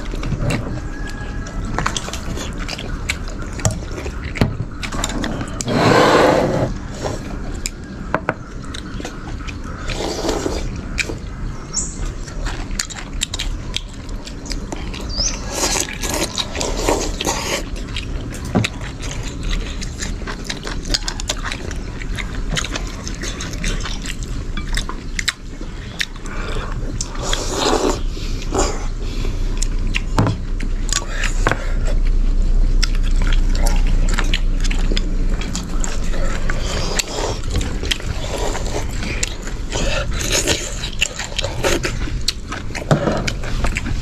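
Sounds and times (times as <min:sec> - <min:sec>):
people slurping soup: 0:05.1 - 0:07.4, 0:09.8 - 0:11.2, 0:26.2 - 0:29.3, 0:36.2 - 0:42.0.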